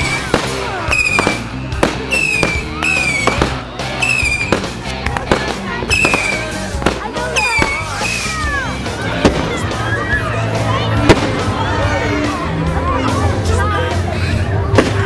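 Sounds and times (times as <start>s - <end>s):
fireworks whistling: 0.0s - 9.5s
fireworks bangs and crackles: 0.0s - 9.8s, 10.9s - 11.9s, 14.6s - 15.0s.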